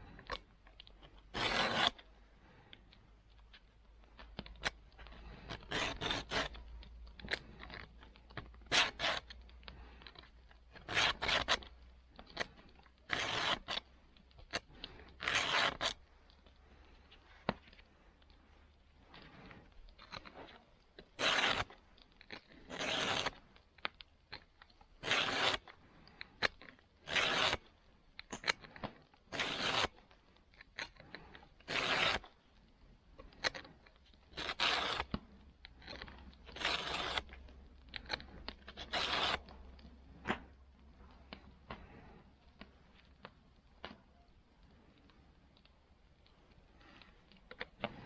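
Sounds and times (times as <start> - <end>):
file rasping on saw teeth: 1.3 - 2.0, 5.2 - 6.6, 8.6 - 9.4, 10.7 - 12.4, 13.1 - 13.8, 15.2 - 16.0, 21.1 - 23.4, 25.0 - 25.8, 27.0 - 27.6, 29.3 - 29.9, 30.8 - 32.3, 34.4 - 35.2, 35.8 - 37.4, 38.1 - 39.5.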